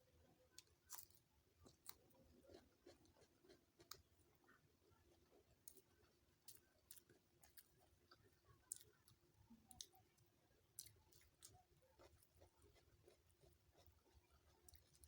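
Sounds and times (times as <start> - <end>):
person chewing food: 0.3 - 15.0.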